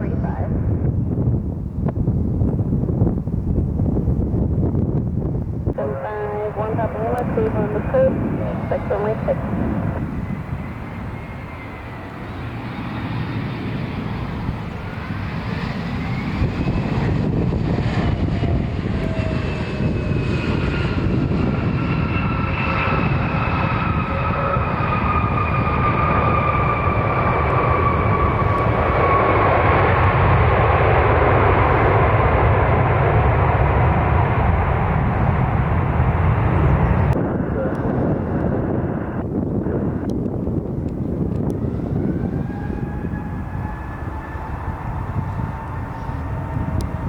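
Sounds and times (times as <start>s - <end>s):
jet airliner engines roaring: 0.0s - 47.0s.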